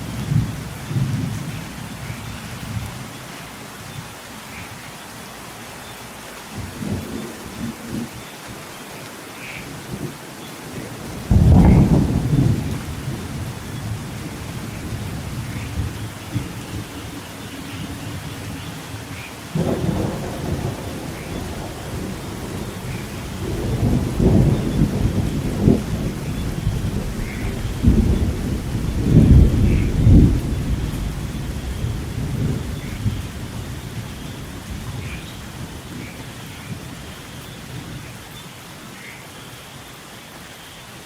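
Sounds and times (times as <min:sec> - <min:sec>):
rolling thunder: 0:00.0 - 0:03.0, 0:10.7 - 0:37.0
steady rain: 0:00.0 - 0:41.0
thunder cracks: 0:11.0 - 0:16.8, 0:19.5 - 0:35.2.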